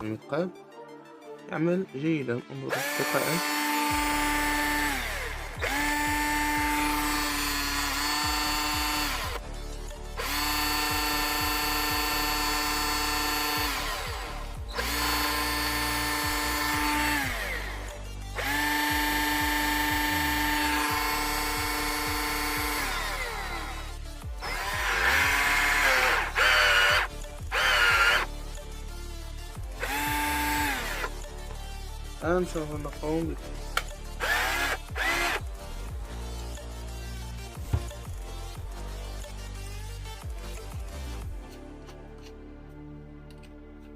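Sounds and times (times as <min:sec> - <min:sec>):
electric drill whining: 0:02.7 - 0:09.5, 0:10.1 - 0:28.3, 0:29.7 - 0:31.2, 0:33.8 - 0:35.6.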